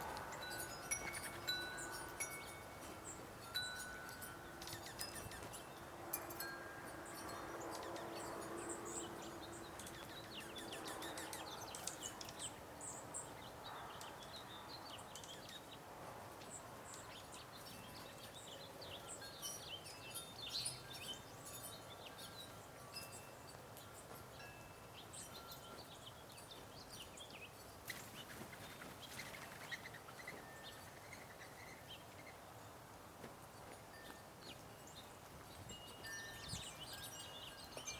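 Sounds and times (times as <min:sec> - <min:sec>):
small birds chirping: 0:00.0 - 0:37.9
steady ringing tones: 0:00.3 - 0:10.0.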